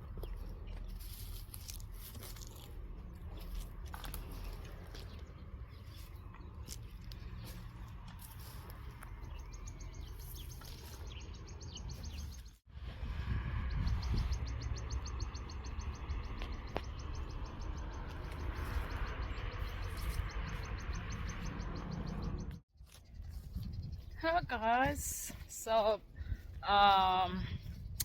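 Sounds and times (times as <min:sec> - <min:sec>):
wind rumbling on microphone: 0:00.0 - 0:28.0
bird chirps: 0:03.3 - 0:12.6, 0:13.5 - 0:24.2.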